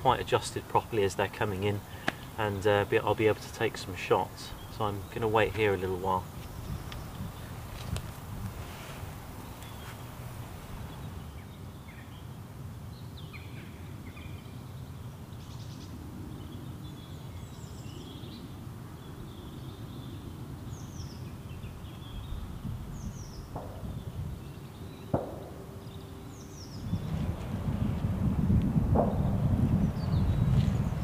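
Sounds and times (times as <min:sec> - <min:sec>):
small birds chirping: 0:00.0 - 0:28.1, 0:29.1 - 0:31.0
low steady rumble: 0:23.6 - 0:31.0.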